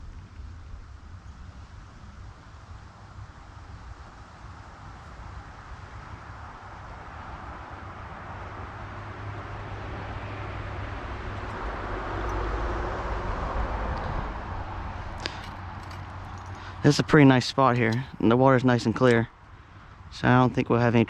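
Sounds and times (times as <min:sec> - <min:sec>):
vehicle driving past: 0:07.2 - 0:17.4
sharp clicks: 0:17.6 - 0:19.3.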